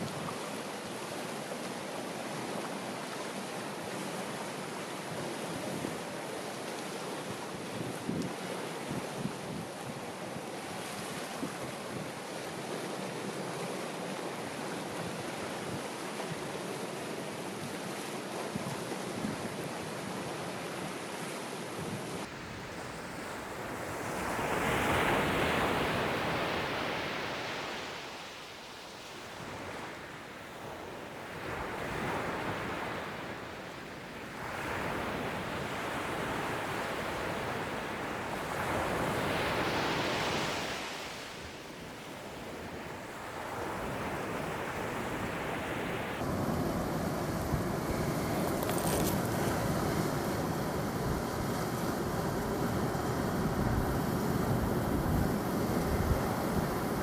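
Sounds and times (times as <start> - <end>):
ocean waves breaking: 22.0 - 57.0.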